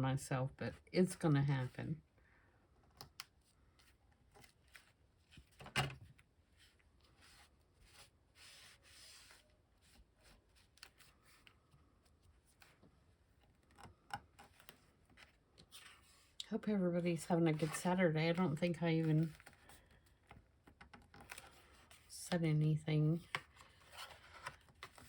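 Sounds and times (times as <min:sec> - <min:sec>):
paper and card taps and rustles: 0:17.5 - 0:22.1, 0:23.2 - 0:25.0.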